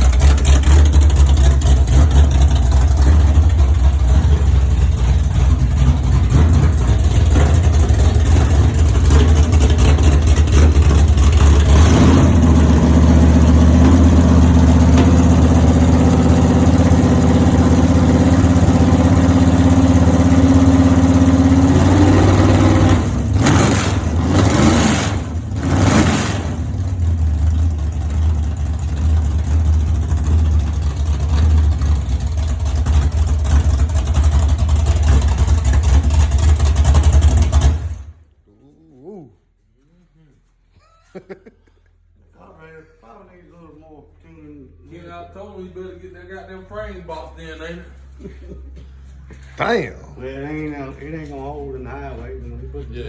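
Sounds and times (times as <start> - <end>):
car engine revving: 0.0 - 38.1.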